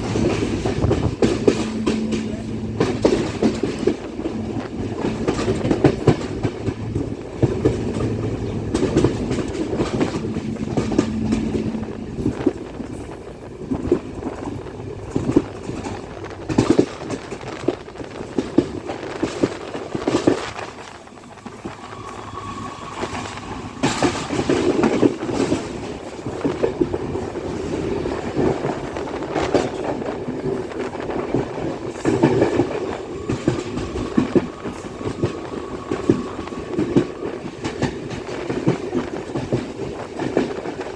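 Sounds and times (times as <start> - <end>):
wheels clattering over rail joints: 0.0 - 22.1, 23.1 - 40.9
train rumbling on track: 0.0 - 40.9.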